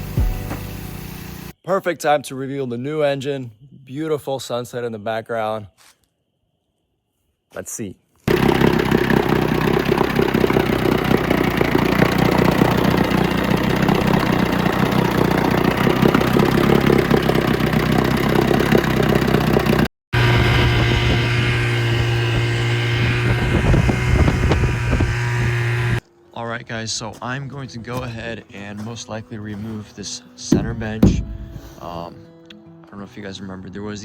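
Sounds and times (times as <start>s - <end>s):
outboard motor running: 8.3s - 26.0s.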